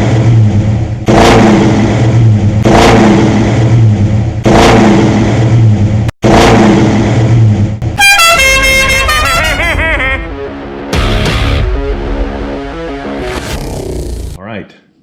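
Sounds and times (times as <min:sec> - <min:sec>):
car engine revving hard: 0:00.0 - 0:07.6.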